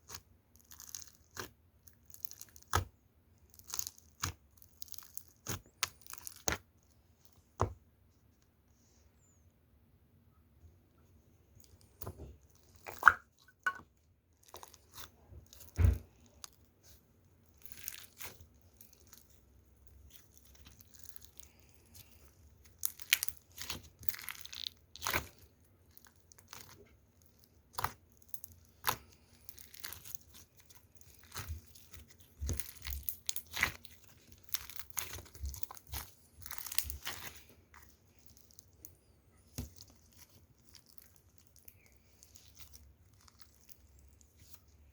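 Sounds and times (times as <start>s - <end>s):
foam slime crunching: 0.0s - 6.6s, 14.4s - 44.9s
small air bubble pops: 12.9s - 13.8s.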